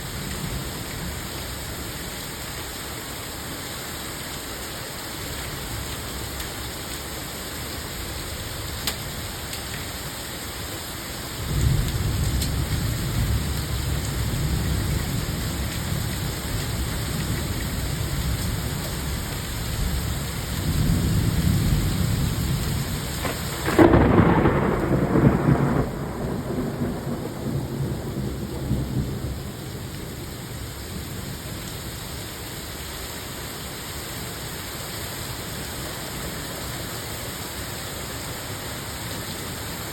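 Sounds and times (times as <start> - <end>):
steady rain: 0.0 - 39.9
thunder crack: 23.2 - 29.5
thunder rolling: 23.2 - 29.9.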